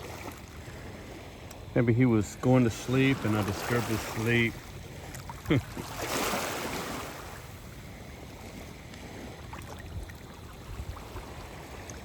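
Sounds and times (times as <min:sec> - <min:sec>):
water lapping at shore: 0:00.0 - 0:12.0
wind on microphone: 0:02.3 - 0:12.0
faint small splashes: 0:08.4 - 0:12.0.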